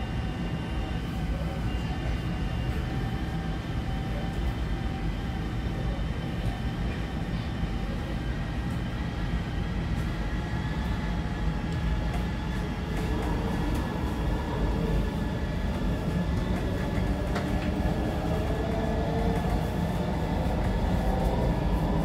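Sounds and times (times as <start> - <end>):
train wheels rumbling on rails: 9.6 - 22.0.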